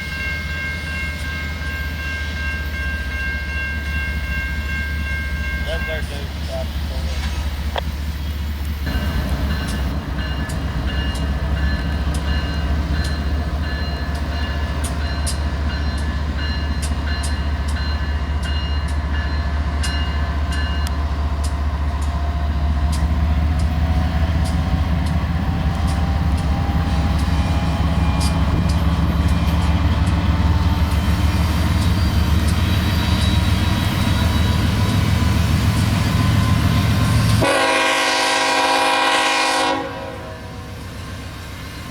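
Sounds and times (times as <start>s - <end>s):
freight train rumbling: 0.0s - 41.9s
wheels clicking on rails: 19.7s - 34.2s.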